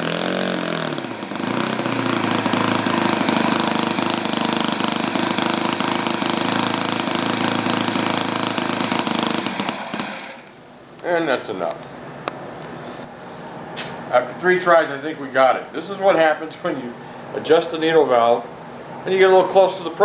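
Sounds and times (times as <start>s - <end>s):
model airplane engine running: 0.0s - 10.5s.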